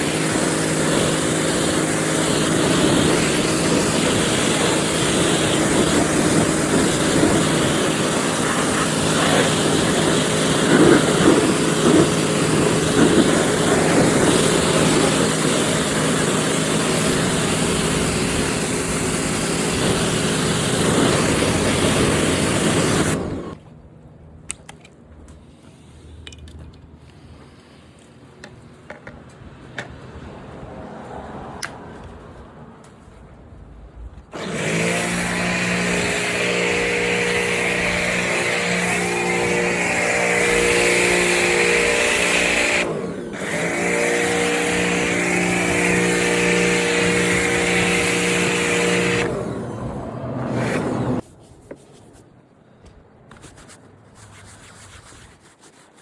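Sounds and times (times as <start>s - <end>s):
pressure washer motor hum: 0.0s - 23.6s, 34.4s - 51.2s
water jet spraying: 0.0s - 23.6s, 34.4s - 49.6s.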